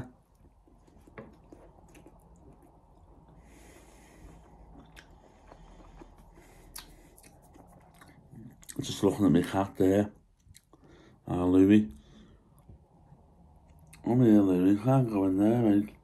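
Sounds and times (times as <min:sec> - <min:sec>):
man chewing: 0:00.2 - 0:08.8, 0:10.3 - 0:11.1.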